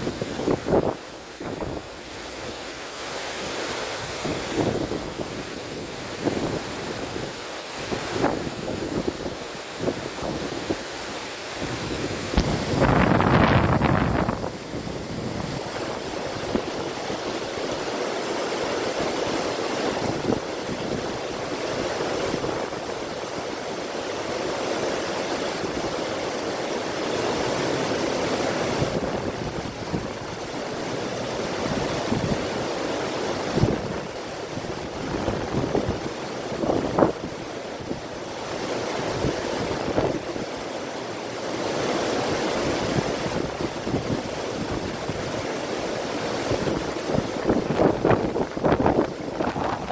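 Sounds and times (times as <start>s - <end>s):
wind on microphone: 0.0s - 2.6s, 3.4s - 17.9s, 27.4s - 40.5s, 41.6s - 49.9s
river water rushing: 0.0s - 49.9s.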